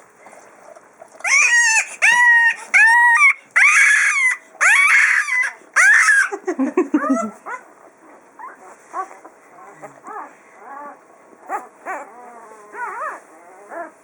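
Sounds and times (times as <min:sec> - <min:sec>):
puppy squeaks and grunts: 0:01.2 - 0:06.3, 0:08.4 - 0:14.0
puppy squealing cries: 0:01.2 - 0:06.4, 0:10.1 - 0:14.0.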